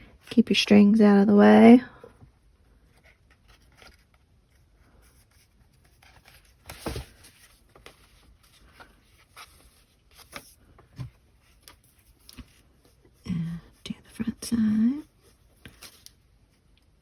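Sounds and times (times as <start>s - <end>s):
paper and fabric rustling: 2.7s - 13.2s.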